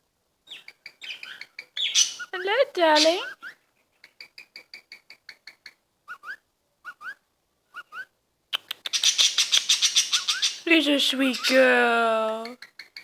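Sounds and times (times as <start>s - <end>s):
parrot chirping: 0.5s - 13.0s
rising whistled chirps: 6.1s - 8.1s, 9.0s - 10.7s.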